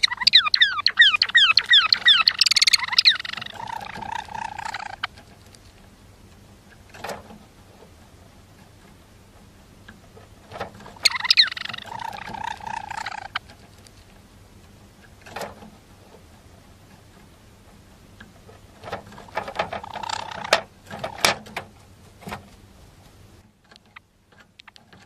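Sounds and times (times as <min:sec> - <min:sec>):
sparrow chattering song: 0:00.0 - 0:05.2, 0:11.0 - 0:13.5, 0:19.3 - 0:21.2.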